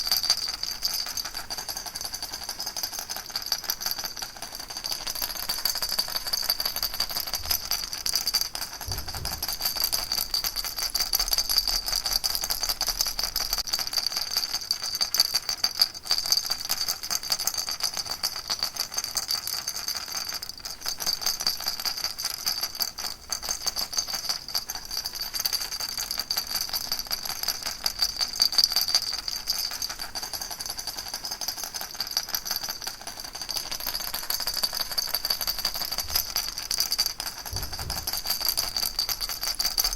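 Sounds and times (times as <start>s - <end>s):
baby rattle shaking: 0.0s - 39.9s.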